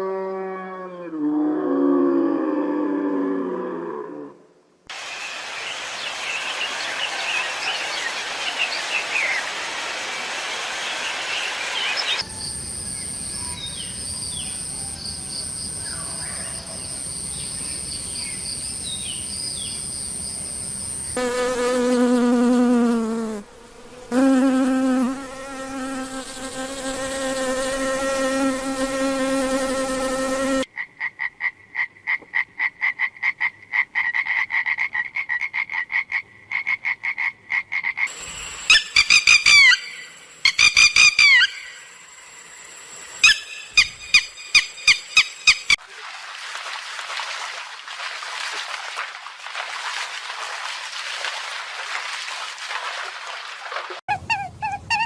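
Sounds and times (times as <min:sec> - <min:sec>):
loud steady insect buzz: 0:16.9 - 0:30.7, 0:38.1 - 0:45.8
short animal chirps: 0:43.2 - 0:45.8.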